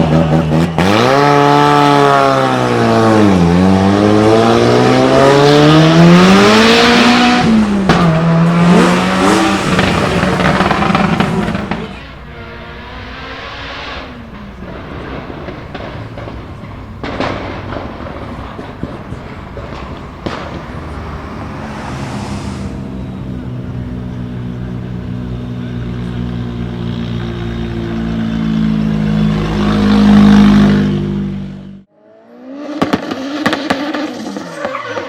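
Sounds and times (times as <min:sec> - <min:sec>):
sharp engine bangs: 0:00.4 - 0:31.8
turbocharged car engine running: 0:06.1 - 0:31.8.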